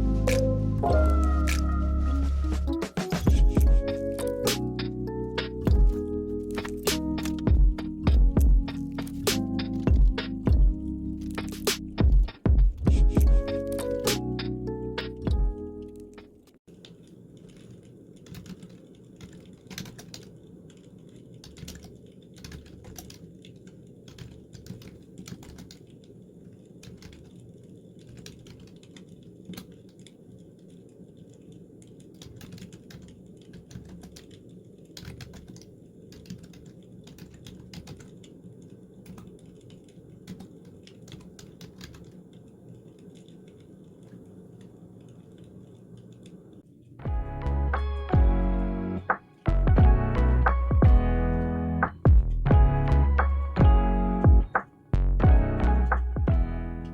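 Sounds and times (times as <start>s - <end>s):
keyboard keystrokes clicking: 13.2s - 25.9s, 31.9s - 38.3s, 39.0s - 44.3s
steady low hum: 38.8s - 56.9s.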